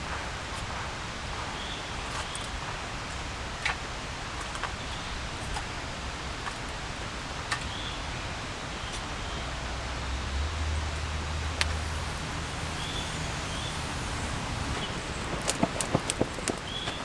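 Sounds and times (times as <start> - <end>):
rain falling in a forest: 0.0 - 17.0
sharp ticks: 11.0 - 17.0.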